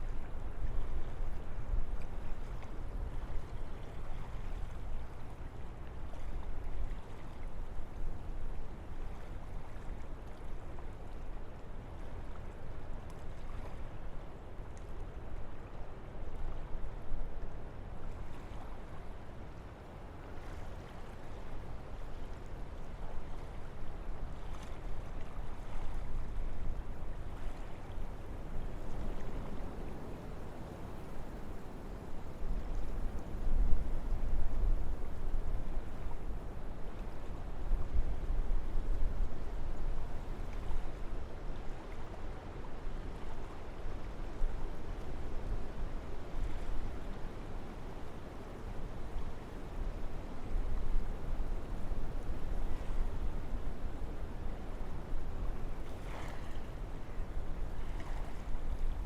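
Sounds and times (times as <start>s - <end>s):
wind blowing through trees: 27.2s - 41.8s, 43.6s - 59.0s.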